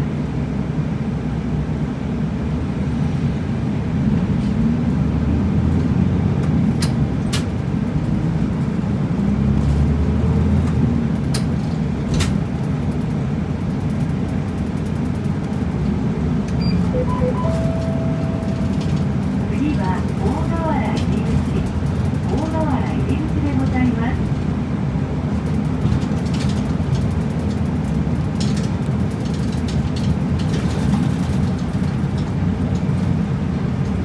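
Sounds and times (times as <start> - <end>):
bus engine and road rumble: 0.0 - 34.0
short tones: 16.6 - 19.8.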